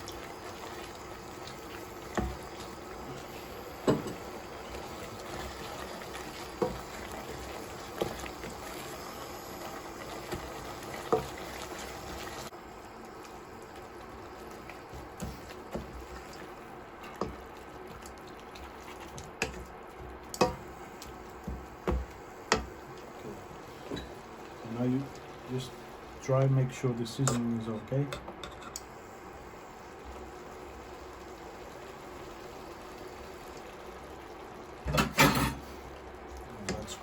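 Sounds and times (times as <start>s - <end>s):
sauce simmering in a pan: 0.0s - 27.4s, 28.8s - 37.0s
spoon knocking against pan: 3.8s - 4.2s.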